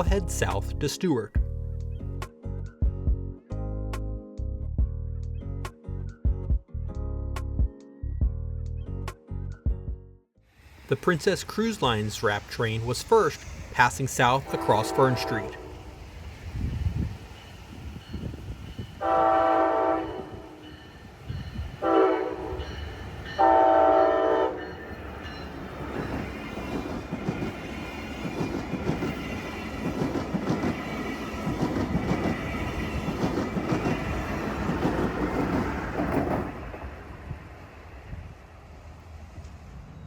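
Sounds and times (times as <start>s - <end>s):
train horn blasts: 14.4s - 16.0s, 19.0s - 20.9s, 21.7s - 24.9s
train wheels clacking on rails: 24.5s - 36.9s.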